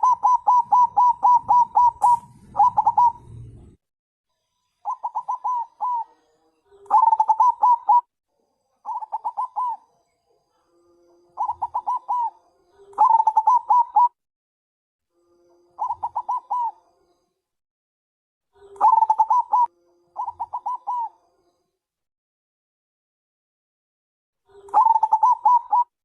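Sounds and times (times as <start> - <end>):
dove rapid cooing: 0.0 - 3.8, 4.9 - 6.2, 6.9 - 8.1, 8.8 - 9.8, 11.4 - 14.2, 15.8 - 16.8, 18.6 - 21.2, 24.5 - 25.9.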